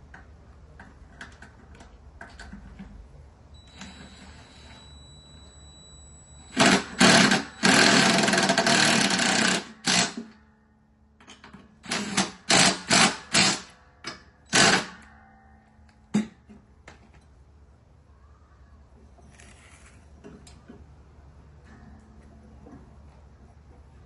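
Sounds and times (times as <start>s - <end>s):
handheld power tool bursts: 6.5s - 10.3s, 11.9s - 13.8s, 14.5s - 15.1s.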